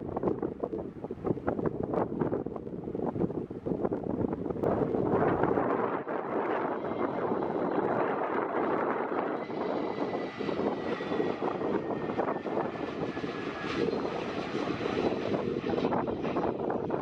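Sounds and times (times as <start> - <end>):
jet engine rush: 0.0 - 17.0.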